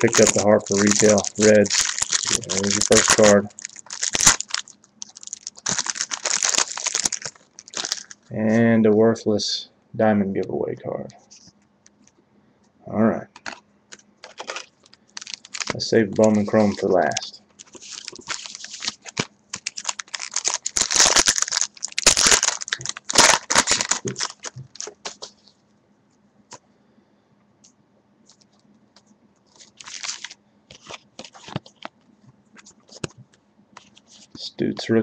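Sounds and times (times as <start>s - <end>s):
card pack wrapper crinkling: 0.0s - 8.3s, 13.3s - 25.3s, 29.5s - 31.9s.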